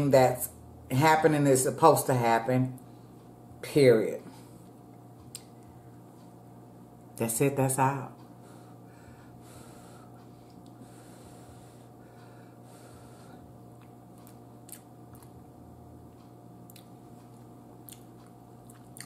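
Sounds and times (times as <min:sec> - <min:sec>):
steady low hum: 0:00.0 - 0:19.0
quiet chewing: 0:13.7 - 0:15.4, 0:16.1 - 0:19.0.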